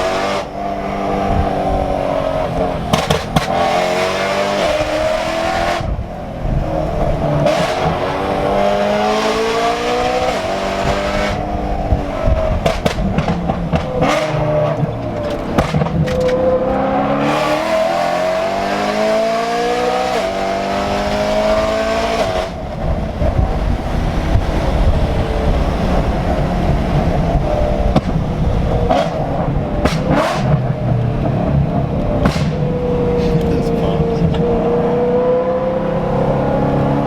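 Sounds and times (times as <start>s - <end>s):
car engine accelerating hard: 0.0s - 37.0s
rough deep exhaust: 22.5s - 35.2s.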